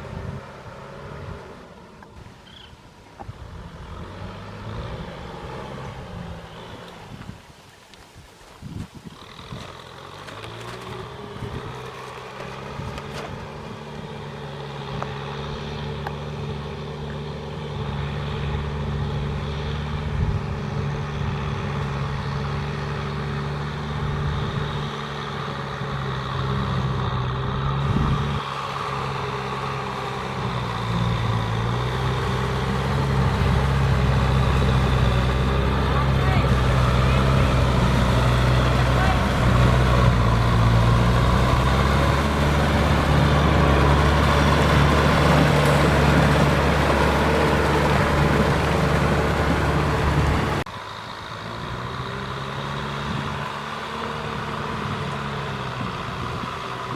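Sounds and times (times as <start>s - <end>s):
tractor diesel engine running: 0.0s - 7.7s, 8.6s - 56.9s.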